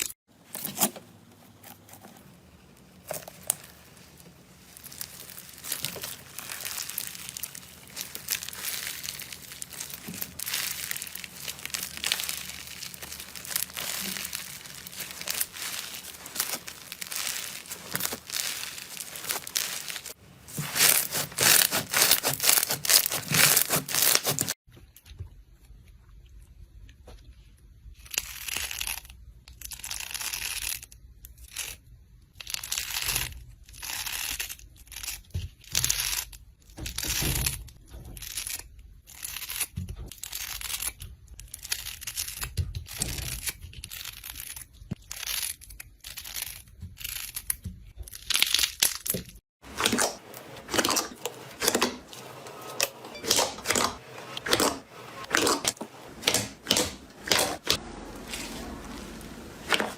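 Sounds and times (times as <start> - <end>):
slime squishing: 0.8 - 24.6, 32.6 - 59.9
slime crackling: 2.9 - 24.6.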